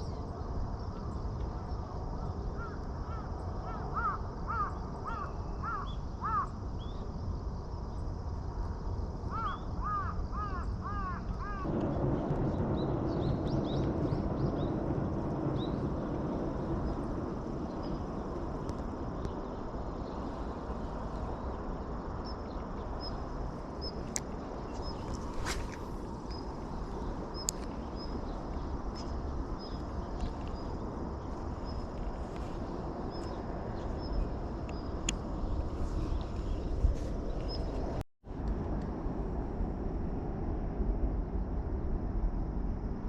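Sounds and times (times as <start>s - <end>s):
crow cawing: 2.6s - 6.5s, 9.3s - 11.7s
steady rushing noise: 11.5s - 43.0s
small birds chirping: 12.4s - 38.0s.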